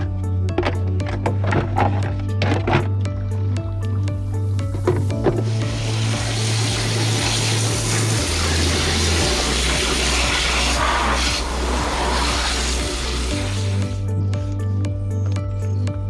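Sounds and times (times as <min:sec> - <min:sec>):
background music bass: 0:00.0 - 0:16.0
water spraying: 0:03.8 - 0:14.2.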